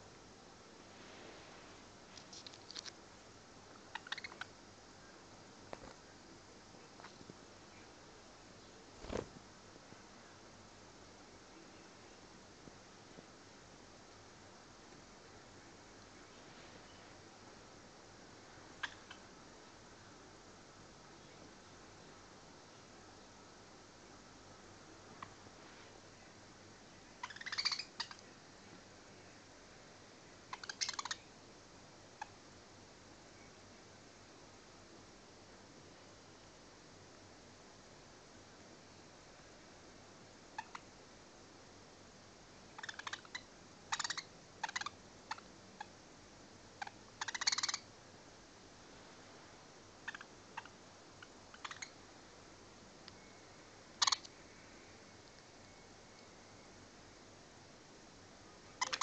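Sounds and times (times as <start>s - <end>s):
budgerigars clicking and chirping: 3.9s - 4.5s, 18.8s - 19.2s, 27.2s - 28.2s, 30.5s - 31.2s, 40.6s - 40.9s, 42.8s - 45.4s, 46.8s - 47.8s, 50.1s - 52.0s, 54.0s - 54.3s, 58.8s - 59.0s.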